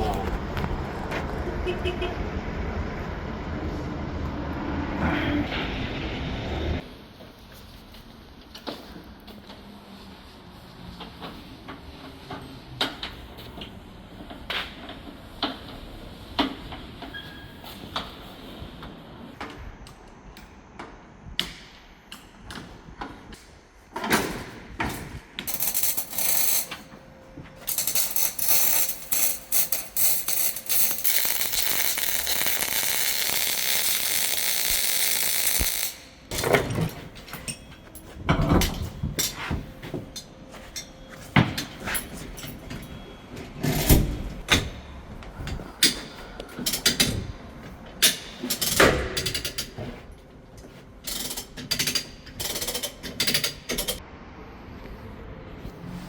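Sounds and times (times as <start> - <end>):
power tool hissing: 27.8 - 36.2.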